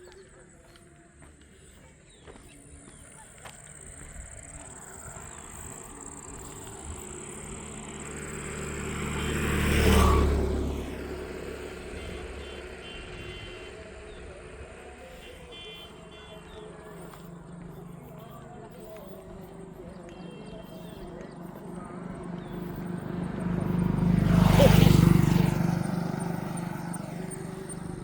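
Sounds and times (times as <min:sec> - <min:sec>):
vehicle passing by: 0:01.4 - 0:28.0.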